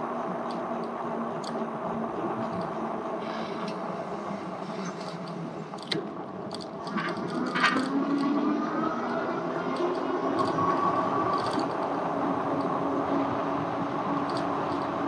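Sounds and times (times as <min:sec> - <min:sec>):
bike clicks and rattles: 0:04.7 - 0:08.3, 0:11.3 - 0:11.8, 0:14.2 - 0:15.0.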